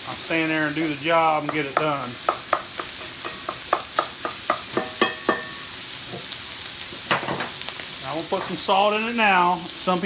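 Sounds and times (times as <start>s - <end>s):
sausage sizzling in a frying pan: 0.0s - 10.0s
utensil knocking against pan: 1.4s - 5.6s.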